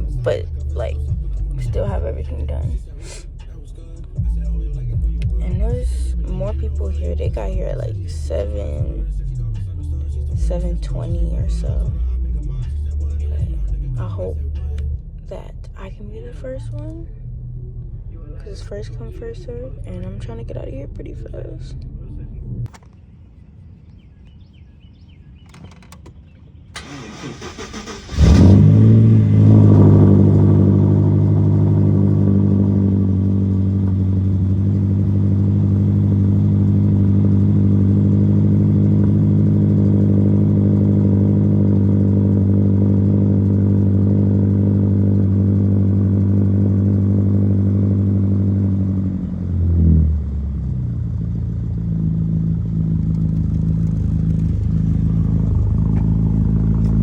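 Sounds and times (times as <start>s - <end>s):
car engine revving and idling: 0.0s - 22.8s, 26.8s - 57.0s
engine cranking: 25.4s - 32.3s, 52.6s - 57.0s.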